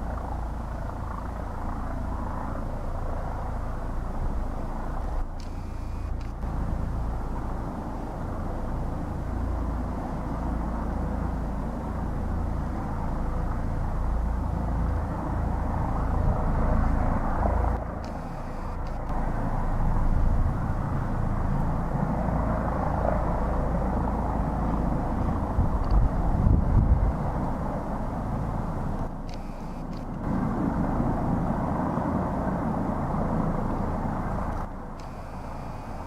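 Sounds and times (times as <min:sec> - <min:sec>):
helicopter rumble: 0:00.0 - 0:36.0.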